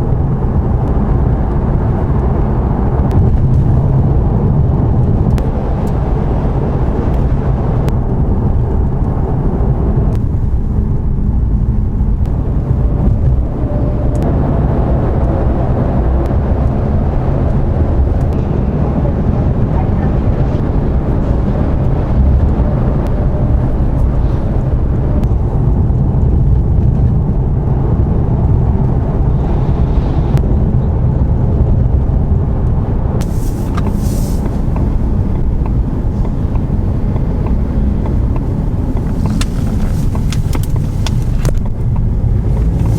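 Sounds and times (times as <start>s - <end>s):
car engine and road rumble: 0.0s - 42.9s
faint clicks: 33.2s - 42.9s.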